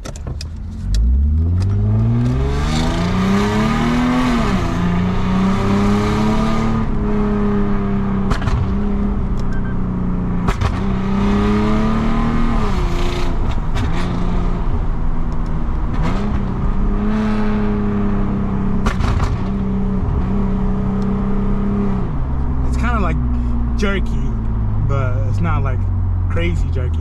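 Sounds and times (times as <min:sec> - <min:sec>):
car engine and exhaust: 0:00.0 - 0:27.0.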